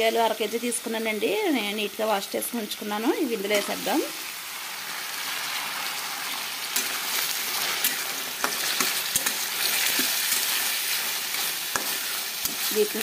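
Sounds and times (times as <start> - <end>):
beans sizzling in oil: 0.0 - 13.0
spatula scraping a pan: 6.7 - 13.0.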